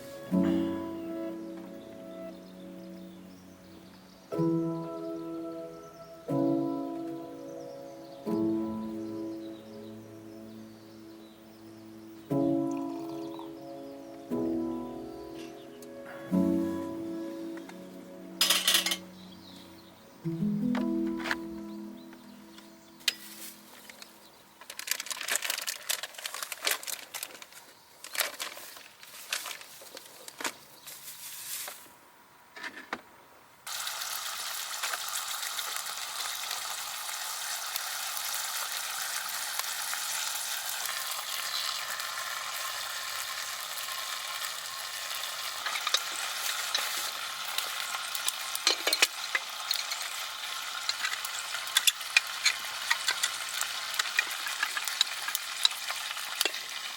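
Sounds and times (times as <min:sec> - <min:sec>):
food sizzling in a pan: 0:12.5 - 0:13.7, 0:23.0 - 0:23.9, 0:33.7 - 0:56.9
crackles and pops: 0:22.6 - 0:30.6, 0:43.7 - 0:56.9.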